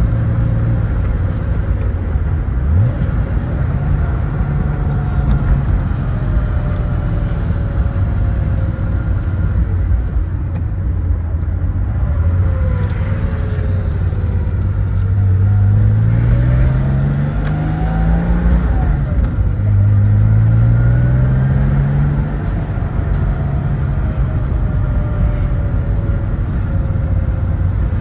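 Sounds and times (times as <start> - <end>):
car engine running: 0.0 - 28.0
tyre and road noise: 0.0 - 28.0.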